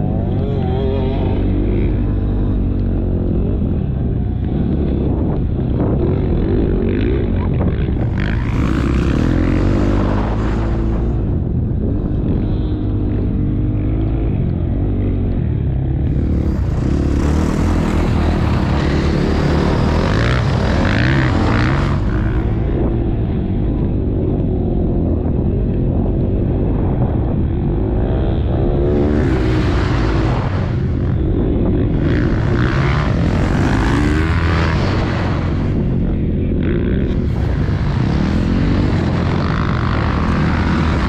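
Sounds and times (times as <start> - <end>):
wind noise: 0.0 - 41.0
motocross bike engine revving: 4.4 - 11.3, 16.0 - 22.9, 28.0 - 41.0.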